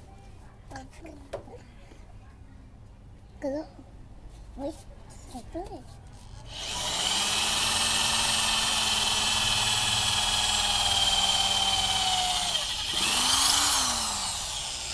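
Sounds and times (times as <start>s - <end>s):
hammer drill motor whining: 6.4s - 14.9s.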